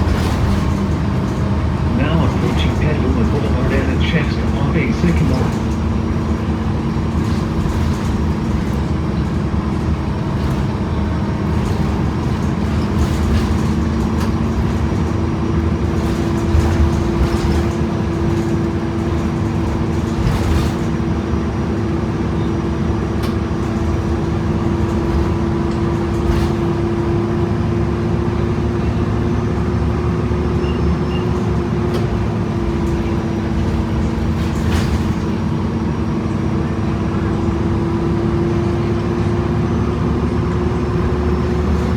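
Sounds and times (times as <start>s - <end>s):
cabin rattles and clicks: 0.0s - 21.2s, 23.0s - 27.4s, 31.2s - 35.6s
bus drivetrain whine: 0.0s - 41.9s.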